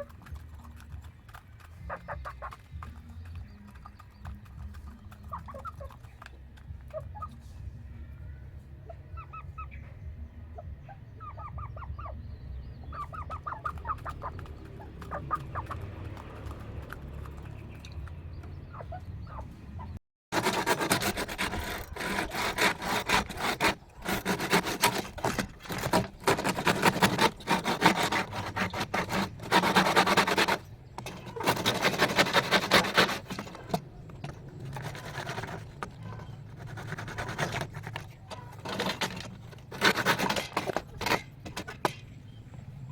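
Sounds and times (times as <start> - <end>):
poultry calling: 1.0 - 17.8, 18.4 - 40.4
loud uneven scraping: 20.3 - 42.3.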